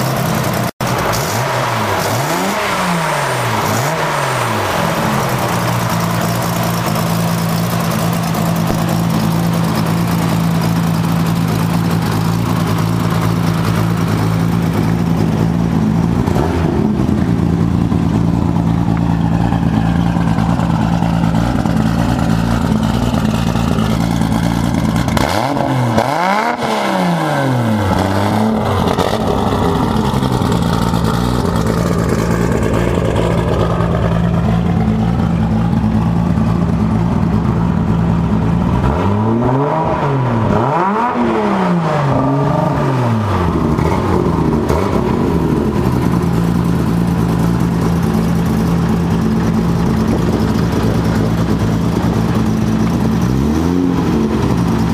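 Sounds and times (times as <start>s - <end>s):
car engine idling and revving: 0.0s - 54.9s.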